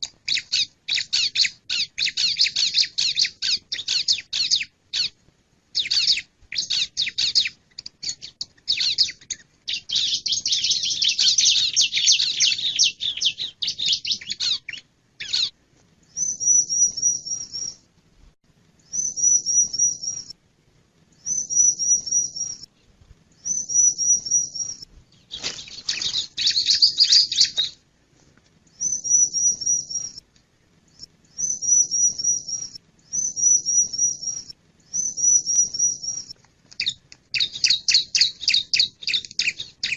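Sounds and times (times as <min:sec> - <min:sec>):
bird high chattering calls: 0:00.2 - 0:05.2, 0:05.8 - 0:15.6, 0:21.2 - 0:22.7, 0:23.4 - 0:27.8, 0:28.8 - 0:30.2, 0:31.3 - 0:39.9.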